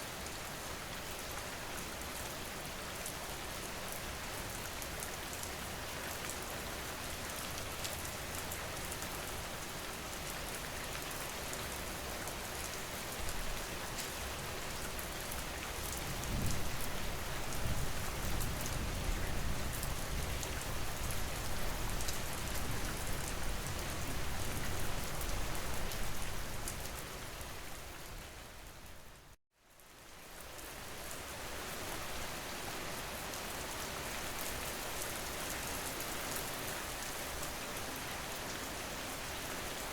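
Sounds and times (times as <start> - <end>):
steady rain with drop patter: 0.0 - 39.9.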